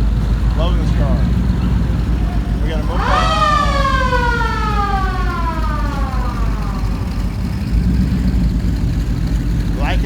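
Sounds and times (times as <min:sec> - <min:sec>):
vehicle engines rumbling: 0:00.0 - 0:10.0
siren wailing: 0:02.4 - 0:08.5.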